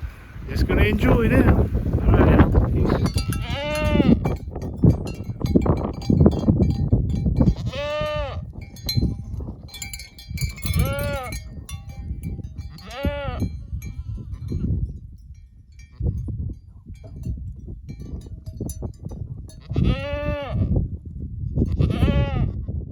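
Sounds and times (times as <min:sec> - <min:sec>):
low wind rumble: 0:00.0 - 0:22.9
livestock bleating: 0:02.8 - 0:04.3, 0:07.5 - 0:08.5, 0:10.7 - 0:11.4, 0:12.7 - 0:14.6, 0:19.6 - 0:20.8, 0:21.7 - 0:22.6.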